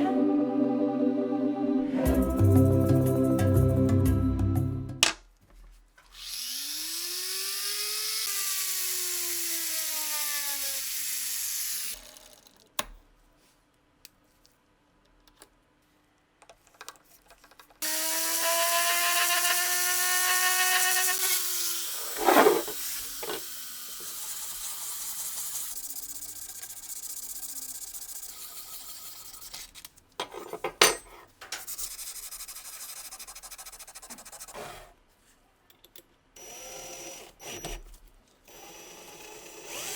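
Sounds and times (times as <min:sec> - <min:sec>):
power tool motor whine: 0:06.1 - 0:12.4, 0:17.8 - 0:25.8.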